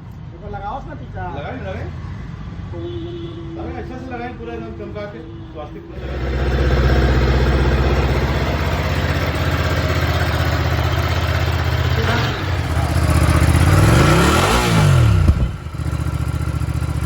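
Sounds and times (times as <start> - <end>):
motorcycle engine idling and revving: 5.9 - 17.0
exhaust pop: 6.0 - 15.8.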